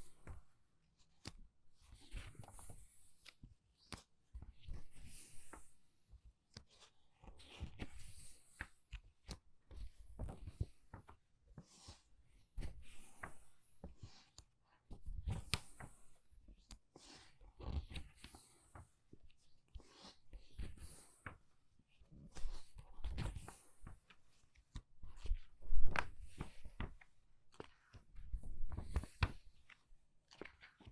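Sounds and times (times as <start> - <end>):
book pages turning: 6.5 - 12.0, 15.1 - 21.4, 22.1 - 30.9.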